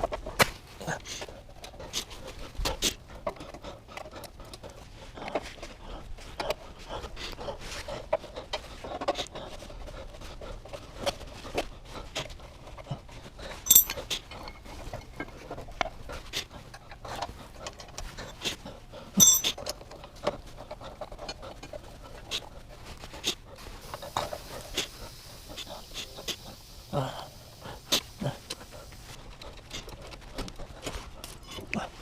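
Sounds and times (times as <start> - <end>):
ringing metallic clinks: 13.7 - 14.6, 19.2 - 19.6.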